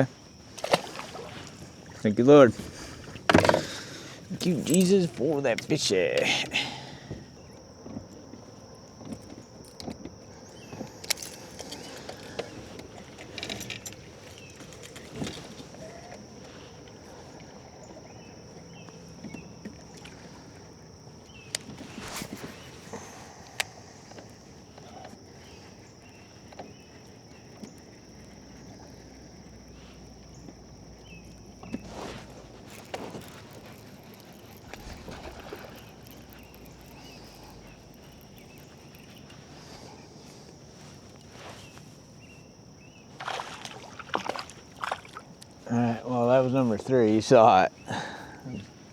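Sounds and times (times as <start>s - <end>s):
high-pitched insect drone: 4.2s - 21.5s, 28.4s - 41.3s.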